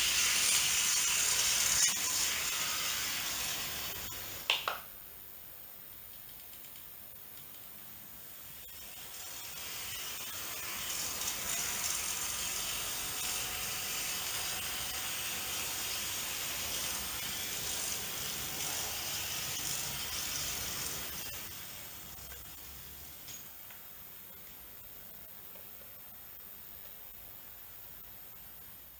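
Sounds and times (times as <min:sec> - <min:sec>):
model train whirring on track: 0:00.0 - 0:04.4, 0:08.6 - 0:22.5.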